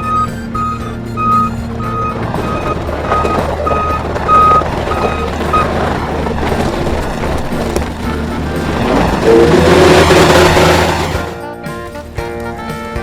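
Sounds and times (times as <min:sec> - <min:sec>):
backup alarm beeping: 0:00.0 - 0:05.7
machine engine running: 0:00.0 - 0:12.1
rough machine rumble: 0:00.0 - 0:13.0.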